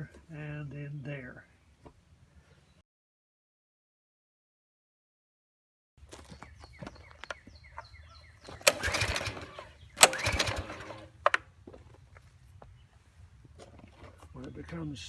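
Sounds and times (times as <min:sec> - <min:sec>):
recoil starter pull whirring: 0:08.5 - 0:11.4.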